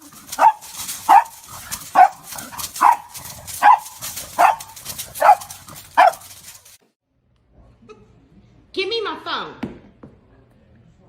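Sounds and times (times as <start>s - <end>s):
dog barking: 0.0s - 6.8s.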